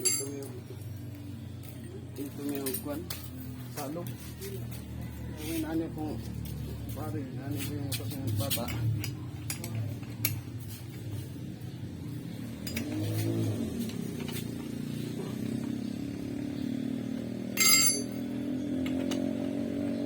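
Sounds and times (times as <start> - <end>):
small engine running and revving: 10.9 - 20.0.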